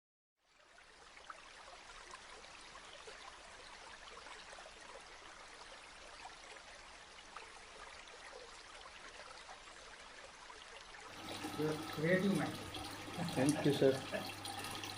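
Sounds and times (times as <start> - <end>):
water fountain trickling: 0.4 - 14.9.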